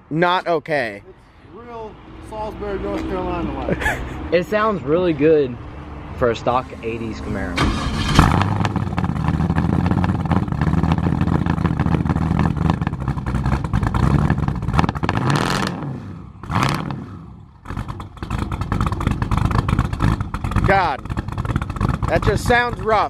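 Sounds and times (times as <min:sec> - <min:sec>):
rough engine idling with throttle blips: 0:06.2 - 0:15.7, 0:16.4 - 0:23.0.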